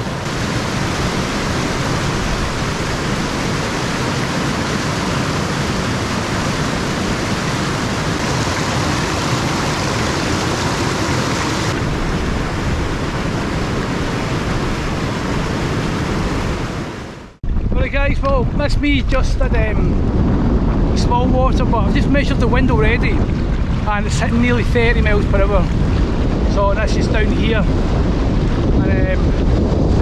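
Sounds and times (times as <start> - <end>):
mountain stream rushing: 0.0 - 17.4.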